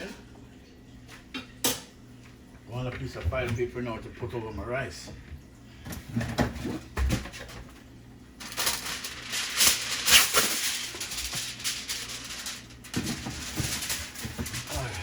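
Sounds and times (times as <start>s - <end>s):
aluminium foil crinkling: 8.4s - 15.0s.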